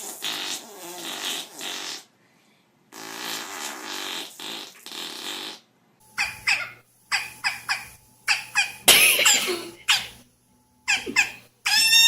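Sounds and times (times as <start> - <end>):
rasping fart-like blasts: 0.0 - 2.1, 2.9 - 5.7.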